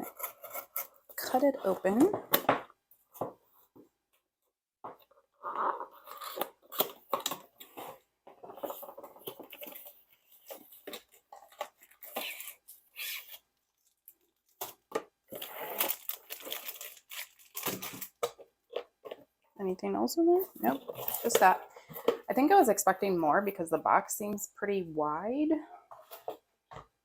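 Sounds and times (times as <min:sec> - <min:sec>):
packaging crinkling and rustling: 0:06.1 - 0:19.2
packaging being cut and torn: 0:10.9 - 0:13.4, 0:14.6 - 0:18.2.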